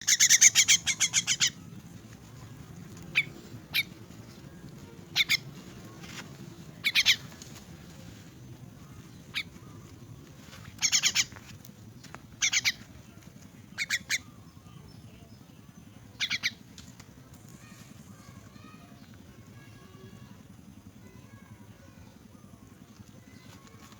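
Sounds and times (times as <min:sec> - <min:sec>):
young bird calling: 0:00.0 - 0:07.7, 0:08.8 - 0:11.5, 0:12.3 - 0:14.7, 0:16.1 - 0:16.7.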